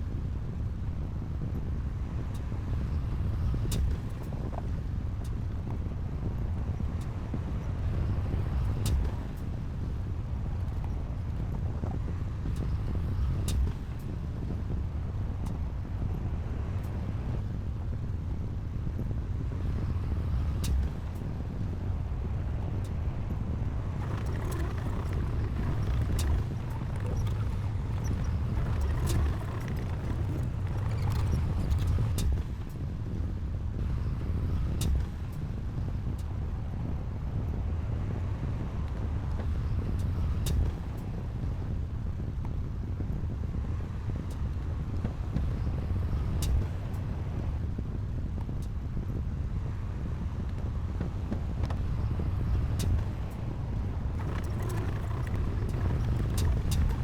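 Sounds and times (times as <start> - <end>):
diesel machinery rumbling: 23.7 - 32.4, 54.1 - 57.0.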